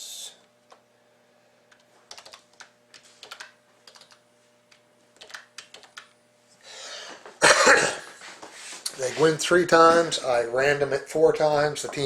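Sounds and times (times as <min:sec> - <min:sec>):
typing on a keyboard: 0:01.7 - 0:04.2, 0:05.2 - 0:06.1.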